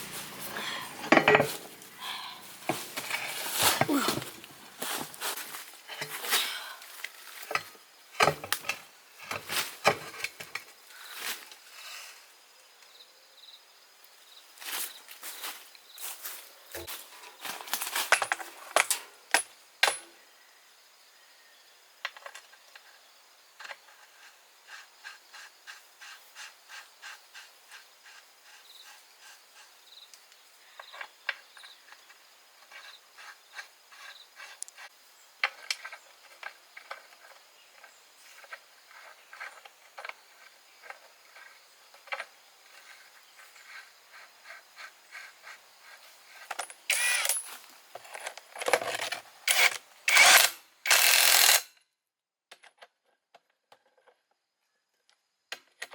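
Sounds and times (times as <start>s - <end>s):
hand tool scraping a surface: 0.0s - 6.4s, 23.7s - 29.8s, 31.7s - 35.0s, 42.7s - 47.7s.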